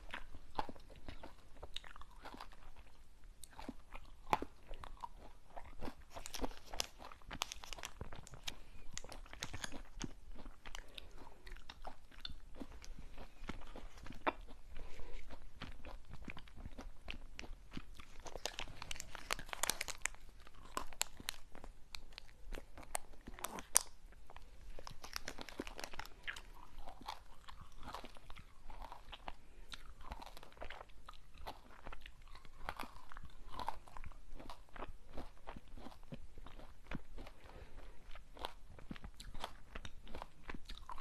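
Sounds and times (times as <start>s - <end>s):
crunching and chewing sweets: 0.0s - 41.0s.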